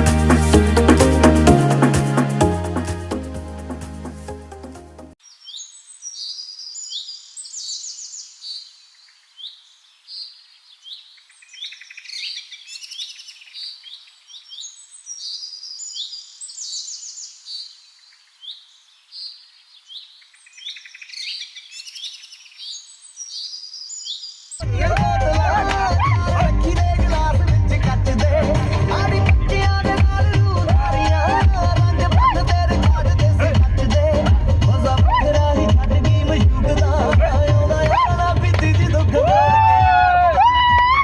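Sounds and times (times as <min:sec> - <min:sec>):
small birds chirping: 0:05.2 - 0:24.7.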